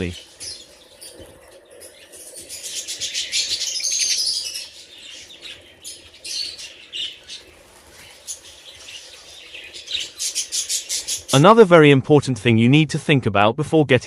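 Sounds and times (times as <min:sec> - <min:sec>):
budgerigars chirping: 0:01.8 - 0:11.5.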